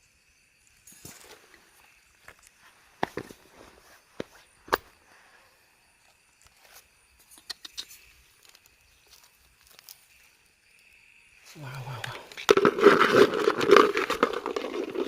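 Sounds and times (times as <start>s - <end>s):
faint steady high hum: 0.0s - 15.0s
rustling: 12.1s - 15.0s.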